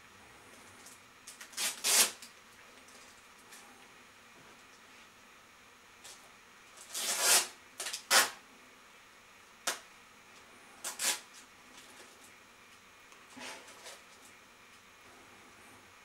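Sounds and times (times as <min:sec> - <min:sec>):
parcel tape ripping off roll: 0:01.3 - 0:02.3, 0:06.8 - 0:08.4, 0:10.8 - 0:11.4.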